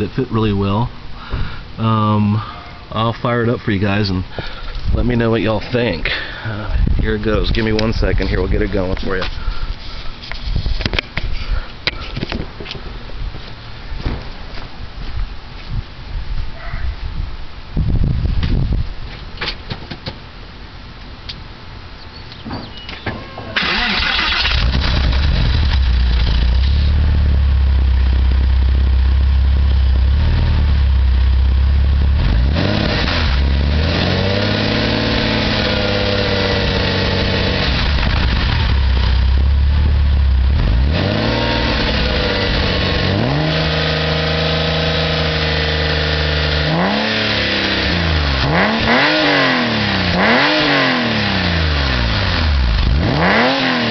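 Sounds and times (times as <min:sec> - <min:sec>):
car engine starting and revving: 0:23.5 - 0:53.9.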